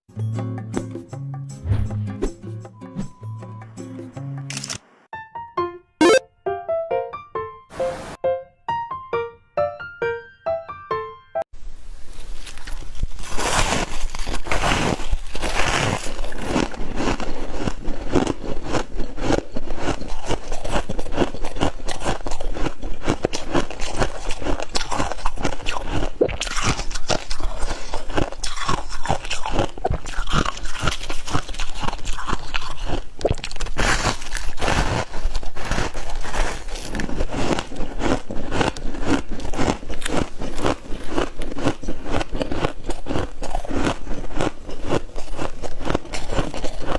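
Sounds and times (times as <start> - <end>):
ice being chewed and crunched: 12.1 - 46.9.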